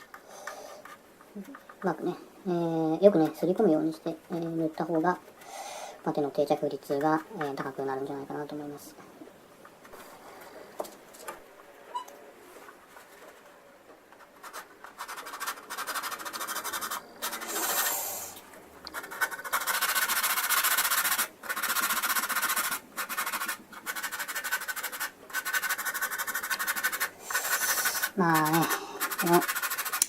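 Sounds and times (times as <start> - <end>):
sanding putty on plastic: 14.2 - 30.0.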